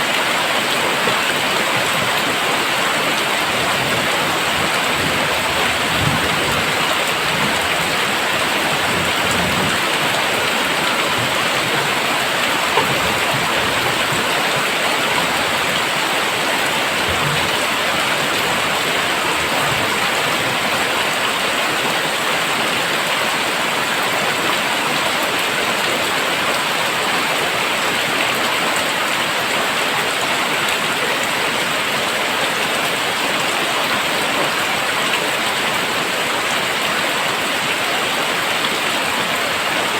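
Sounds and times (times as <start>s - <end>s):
heavy rain hissing: 0.0s - 24.2s.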